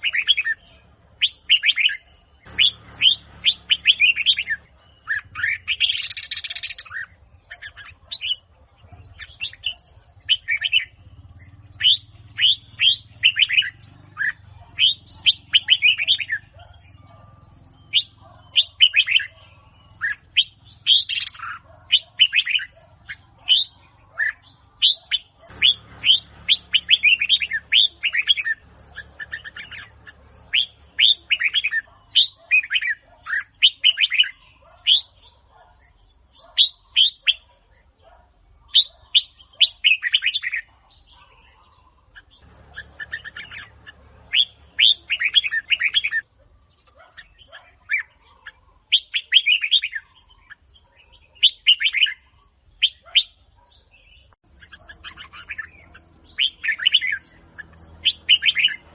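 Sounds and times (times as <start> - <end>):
bird singing quick clear notes: 0.0 - 8.4.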